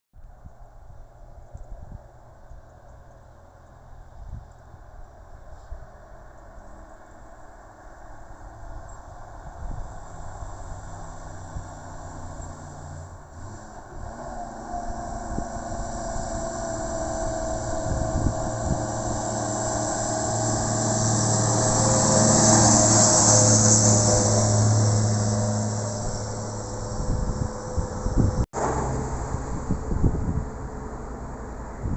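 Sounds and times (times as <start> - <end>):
fire engine approaching: 0.5 - 31.9.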